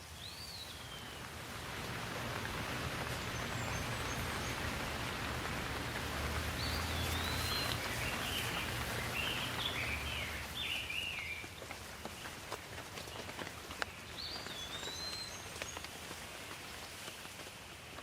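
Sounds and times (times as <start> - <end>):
steady rain falling: 0.0 - 18.0
songbird whistling: 6.6 - 11.4.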